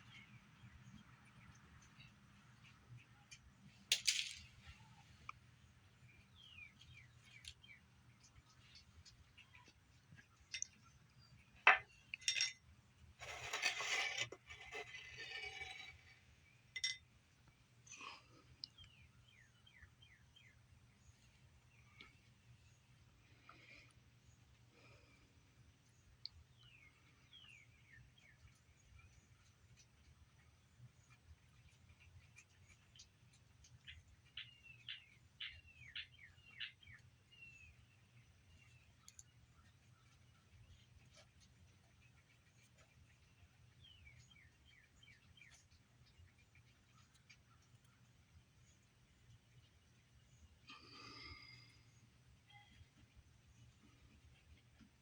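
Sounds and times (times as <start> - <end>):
clinks and scrapes on dish: 11.7 - 12.6, 13.2 - 16.2, 16.8 - 17.1
scratchy rustling: 13.2 - 16.1.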